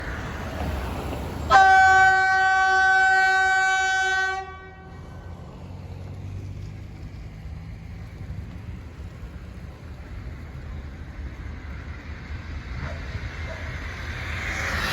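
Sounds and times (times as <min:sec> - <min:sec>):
low rumble of passing train: 0:00.0 - 0:14.9
train horn blast: 0:01.5 - 0:05.1.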